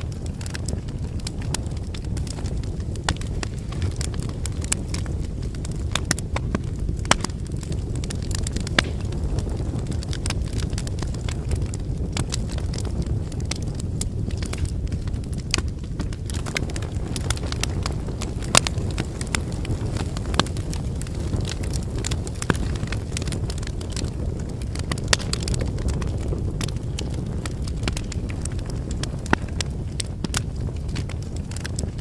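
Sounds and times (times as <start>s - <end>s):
firewood crackling: 0.0s - 32.0s
low fire rumble: 0.0s - 32.0s.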